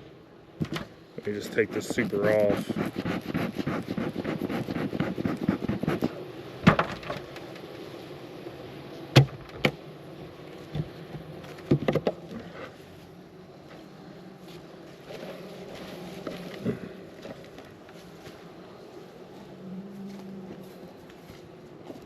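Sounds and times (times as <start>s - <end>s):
honeybees buzzing: 0.0s - 22.0s
wooden knocks and clunks: 11.6s - 12.2s.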